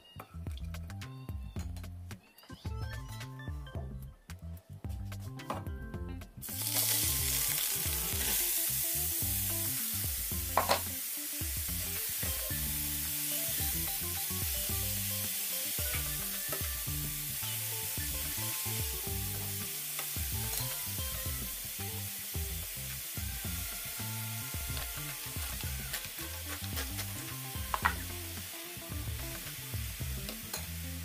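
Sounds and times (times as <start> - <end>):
carrots sizzling in a pan: 6.4 - 31.0.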